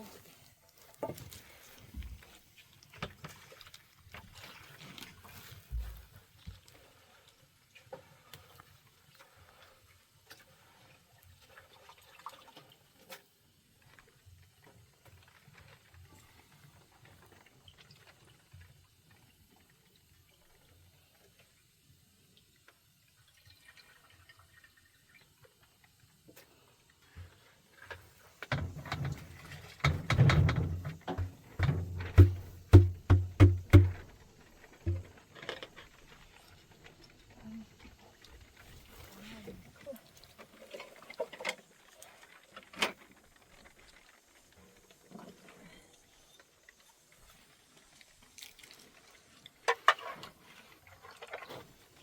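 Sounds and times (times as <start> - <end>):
faint water dripping: 0.0 - 30.0, 30.6 - 52.0
dull thumps: 28.5 - 34.1, 34.9 - 35.1
water splashing: 28.5 - 35.2
scattered knocks: 29.8 - 34.0.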